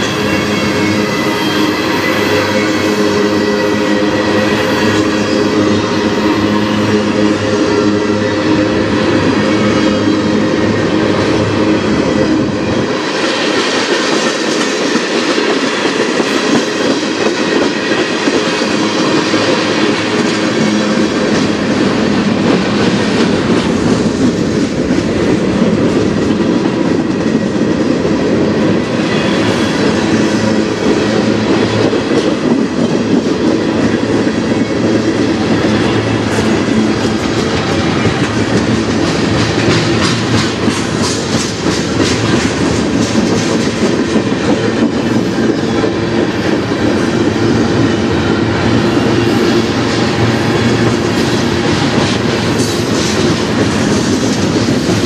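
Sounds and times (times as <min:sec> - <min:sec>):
steel wheels running on rail: 0:00.0 - 0:55.0
wheels clicking over rail joints: 0:30.6 - 0:47.2.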